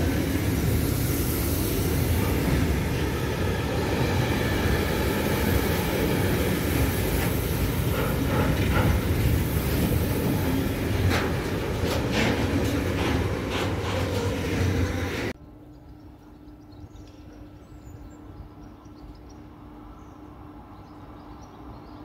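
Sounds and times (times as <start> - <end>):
freight wagons rumbling on rails: 0.0 - 15.4.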